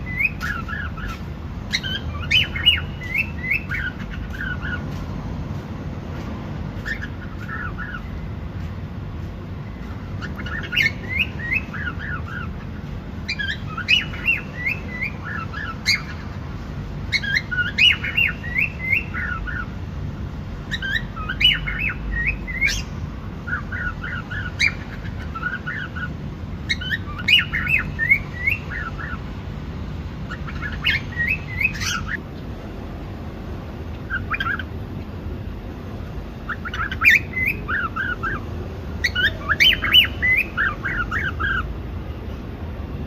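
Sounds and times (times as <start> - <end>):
cockatiel chirping: 0.0 - 4.8, 6.8 - 8.1, 10.2 - 16.3, 17.1 - 19.7, 20.7 - 22.9, 23.5 - 29.2, 30.3 - 32.2, 34.1 - 34.7, 36.5 - 38.4, 39.0 - 41.6
low background hum: 0.0 - 43.0.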